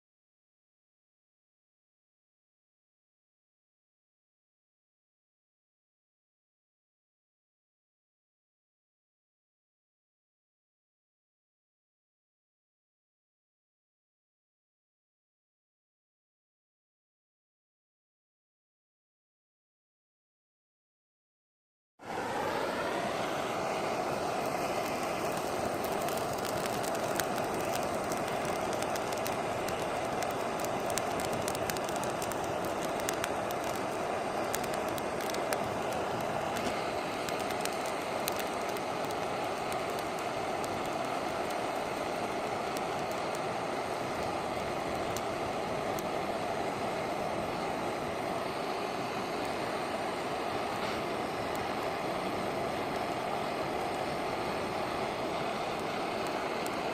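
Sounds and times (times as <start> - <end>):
rush of flame: 22.0 - 56.9
wood fire crackling: 22.0 - 56.9.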